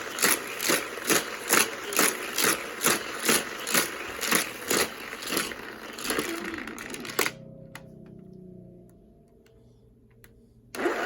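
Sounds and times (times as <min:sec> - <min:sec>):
toy cars clattering on track: 0:00.0 - 0:07.4.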